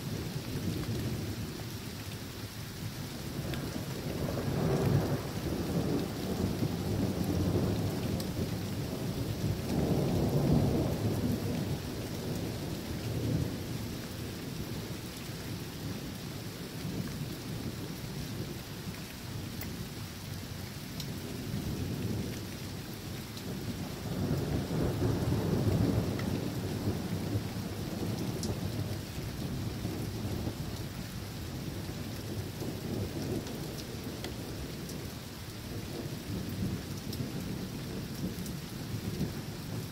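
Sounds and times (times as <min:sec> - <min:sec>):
steady rain falling: 0:00.0 - 0:39.9
rolling thunder: 0:23.7 - 0:30.8.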